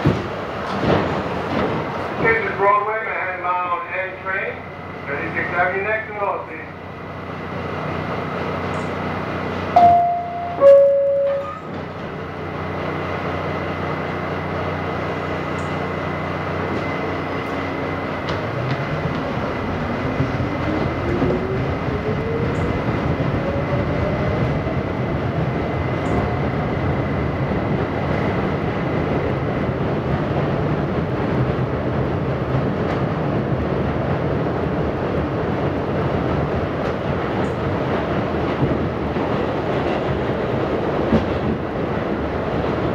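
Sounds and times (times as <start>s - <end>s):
train running noise: 0.0s - 42.9s
two-tone door chime: 9.8s - 11.8s.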